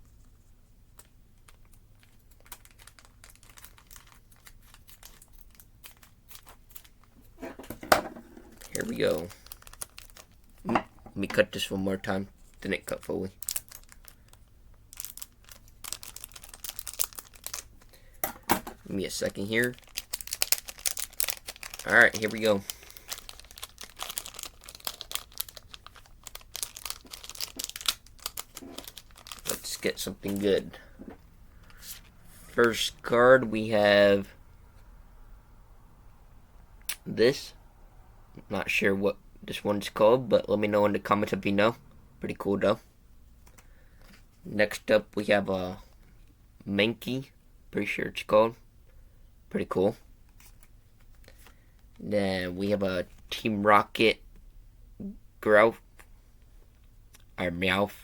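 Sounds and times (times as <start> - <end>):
foil wrapper crinkling: 0.9 - 7.2, 8.5 - 10.7, 11.4 - 18.2, 18.8 - 32.9, 50.2 - 52.1.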